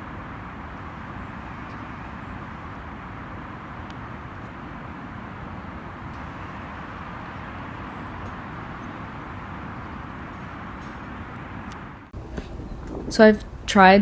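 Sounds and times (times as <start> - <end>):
distant city traffic: 0.0 - 14.0
faint clicks: 12.2 - 13.8.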